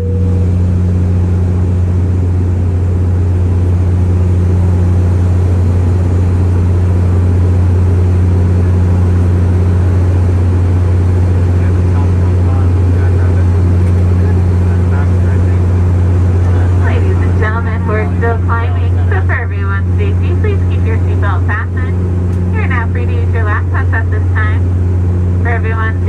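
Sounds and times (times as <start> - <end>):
turboprop engines droning: 0.0 - 26.0
airflow rushing: 5.0 - 21.0.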